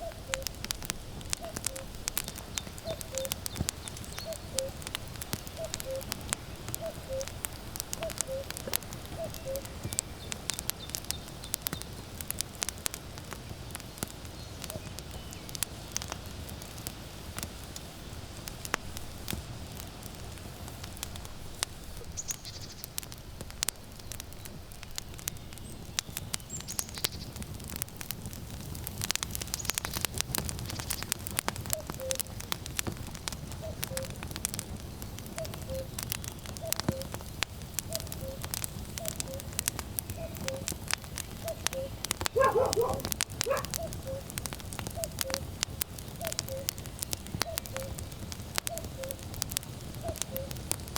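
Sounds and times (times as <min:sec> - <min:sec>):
cuckoo calling: 0:00.0 - 0:00.6, 0:02.8 - 0:04.9, 0:05.5 - 0:06.2, 0:06.8 - 0:07.4, 0:08.0 - 0:10.0, 0:31.8 - 0:32.4, 0:33.6 - 0:34.2, 0:35.4 - 0:36.0, 0:36.6 - 0:37.2, 0:37.9 - 0:39.6, 0:40.2 - 0:40.7, 0:41.4 - 0:44.3, 0:45.0 - 0:45.4, 0:46.2 - 0:46.8, 0:47.4 - 0:48.0, 0:48.7 - 0:49.2, 0:50.0 - 0:50.6
firewood crackling and popping: 0:00.0 - 0:50.9.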